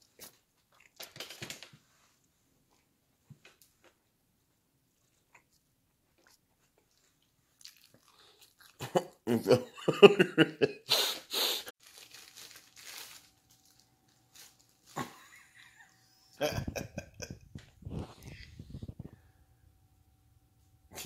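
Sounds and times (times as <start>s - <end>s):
person chewing sandwich: 5.0s - 9.2s
rustling: 11.8s - 15.6s.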